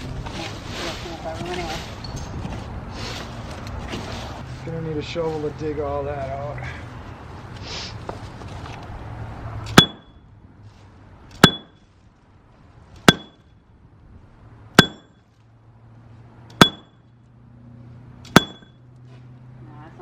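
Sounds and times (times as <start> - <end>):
metal tool striking masonry: 9.7 - 10.1, 11.4 - 11.8, 13.0 - 13.5, 14.8 - 15.2, 16.5 - 16.9, 18.3 - 18.8.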